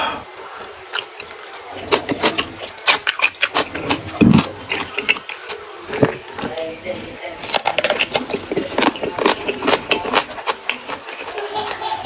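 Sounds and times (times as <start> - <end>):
chewing and crunching vegetables: 0.5 - 12.0
deep mouth sound: 3.5 - 5.2.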